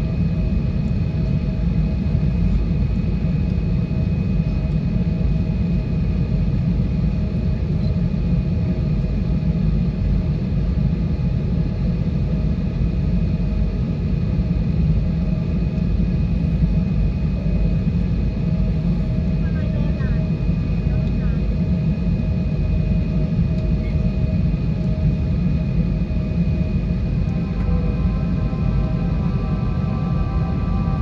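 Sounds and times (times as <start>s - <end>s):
airliner cabin engine rumble: 0.0s - 31.0s
faint steady whining tones: 21.9s - 31.0s.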